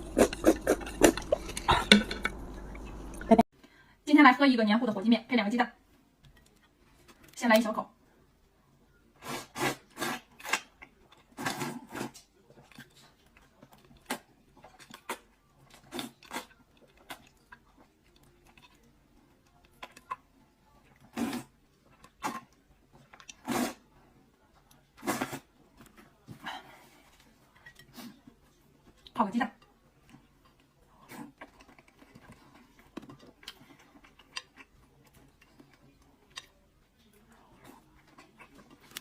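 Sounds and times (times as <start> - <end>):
chewing and wet mouth sounds: 0.0 - 3.4, 9.7 - 23.6, 29.8 - 39.0
noodles slurped: 0.0 - 3.4.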